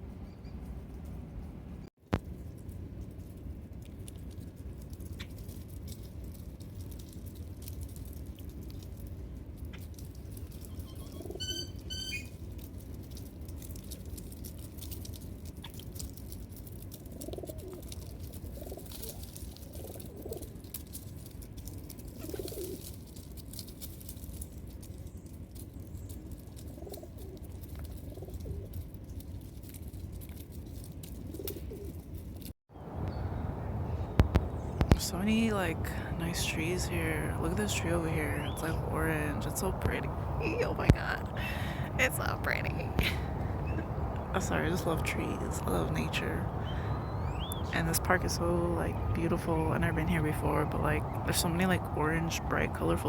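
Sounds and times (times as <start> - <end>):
low background rumble: 0.0 - 53.0
small bird chirping: 10.6 - 12.4, 46.4 - 47.8
doves cooing: 10.8 - 12.2, 17.0 - 20.7, 22.0 - 22.9, 26.6 - 28.8, 31.3 - 32.0.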